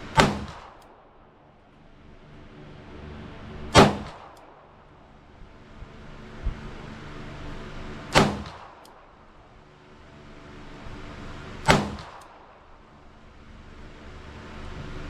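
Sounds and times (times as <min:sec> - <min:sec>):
revolver shots echoing: 0:00.1 - 0:00.9, 0:03.7 - 0:04.4, 0:08.1 - 0:09.0, 0:11.7 - 0:12.4.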